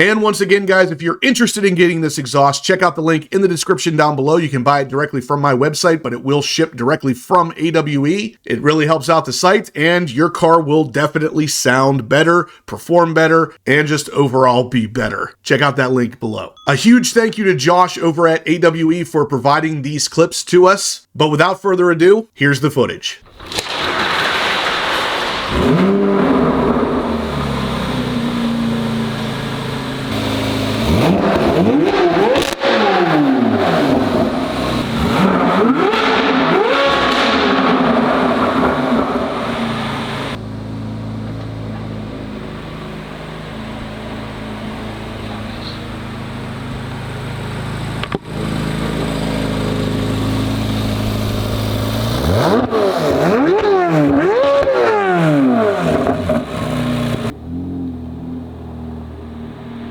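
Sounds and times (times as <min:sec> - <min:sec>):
car engine revving hard: 0:24.0 - 0:59.9.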